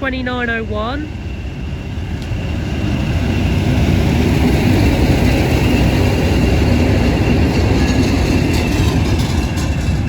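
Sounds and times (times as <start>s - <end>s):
diesel locomotive engines rumbling: 0.0s - 10.0s.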